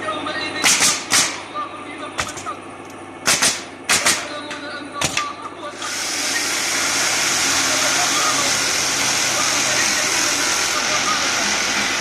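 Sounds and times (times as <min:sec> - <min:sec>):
hammer driving nails into wood: 0:00.6 - 0:01.4, 0:03.2 - 0:04.4, 0:05.0 - 0:05.3
steady loud hiss: 0:05.1 - 0:12.0.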